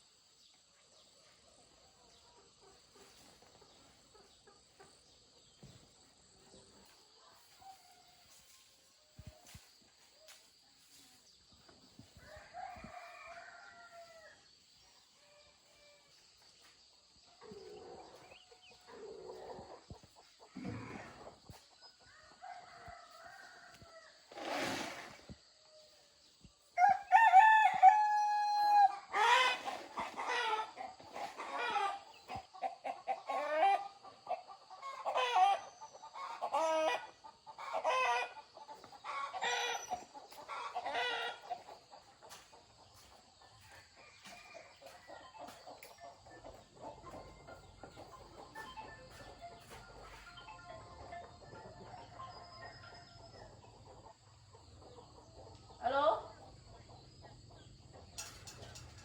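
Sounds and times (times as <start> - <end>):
chicken clucking: 1.6 - 8.0, 17.4 - 22.0, 29.1 - 59.0
rooster crowing: 26.8 - 29.3.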